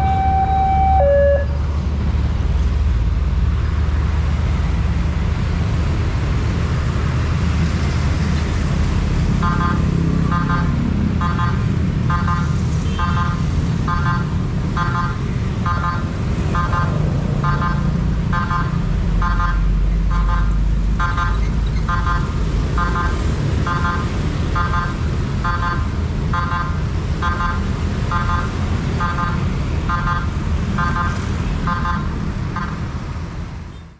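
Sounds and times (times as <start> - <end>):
level crossing warning bell: 0.0 - 1.6
traffic rumble: 0.0 - 33.9.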